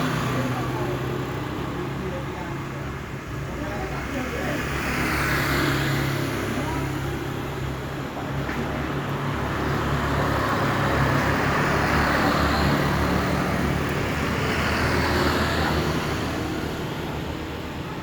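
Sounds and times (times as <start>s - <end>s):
motor vehicle hum: 0.0s - 18.0s
vehicle passing road noise: 0.0s - 18.0s.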